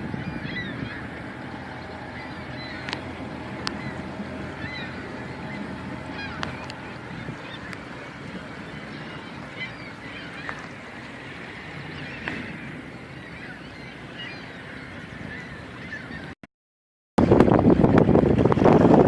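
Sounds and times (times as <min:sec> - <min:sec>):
birds honking and calling: 0:00.0 - 0:16.4.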